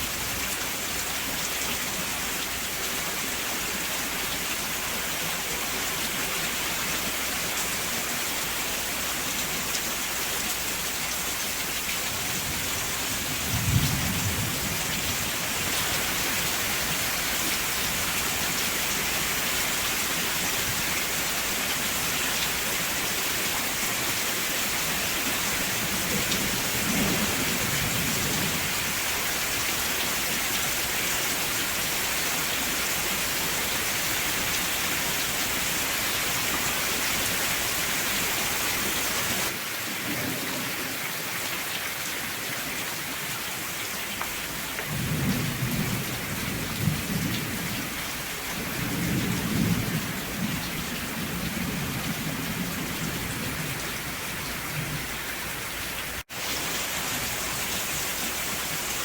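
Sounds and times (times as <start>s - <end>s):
steady rain: 0.0s - 59.0s
thunder rumbling: 12.4s - 16.2s, 25.8s - 29.0s, 44.8s - 55.3s.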